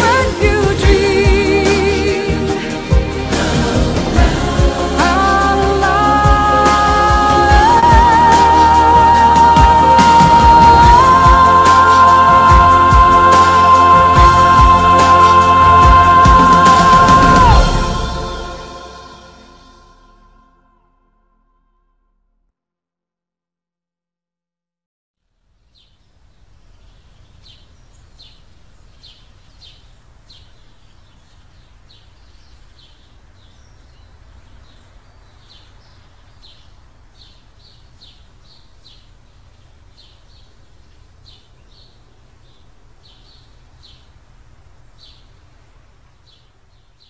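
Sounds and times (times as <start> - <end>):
low rumble and hiss: 25.3 - 47.0
bird chirping: 25.6 - 44.2, 44.9 - 47.0.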